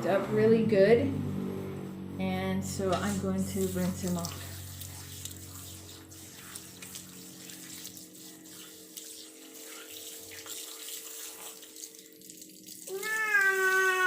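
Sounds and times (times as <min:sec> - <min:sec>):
water running from a tap: 0:03.0 - 0:14.0
cat meowing loudly: 0:12.9 - 0:14.0.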